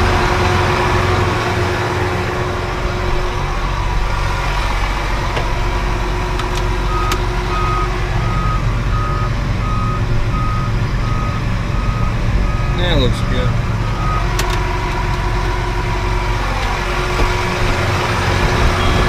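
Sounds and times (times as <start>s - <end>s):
engine running: 0.0s - 19.0s
backup alarm beeping: 6.8s - 14.4s.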